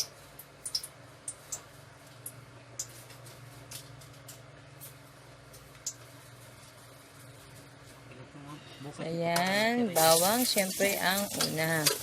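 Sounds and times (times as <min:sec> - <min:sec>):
oil crackling and popping: 0:10.0 - 0:12.0.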